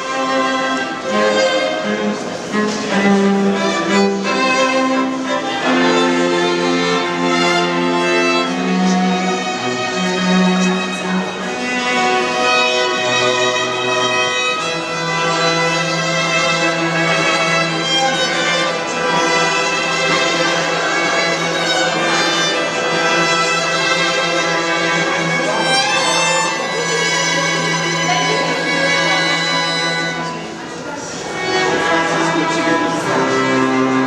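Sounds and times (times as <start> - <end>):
string quartet playing: 0.0 - 34.0
low sustained note: 25.2 - 34.0.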